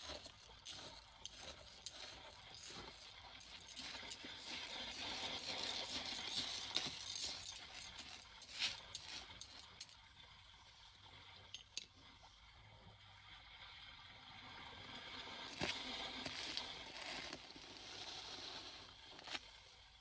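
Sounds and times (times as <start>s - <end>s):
hard objects clinking: 0.0s - 10.0s.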